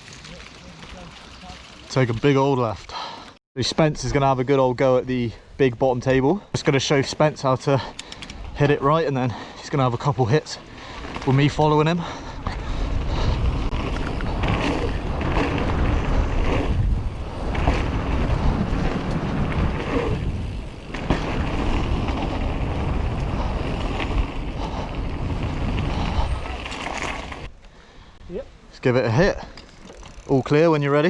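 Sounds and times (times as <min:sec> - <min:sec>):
bike tyres rolling on trail: 0:00.0 - 0:28.1, 0:28.7 - 0:31.0
wind rushing over microphone: 0:12.2 - 0:27.5.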